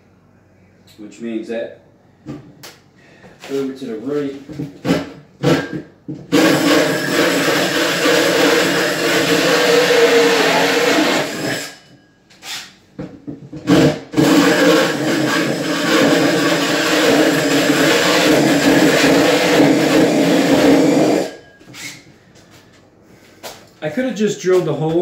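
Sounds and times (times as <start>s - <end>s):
power drill boring into wood: 6.3s - 11.8s, 13.7s - 21.3s.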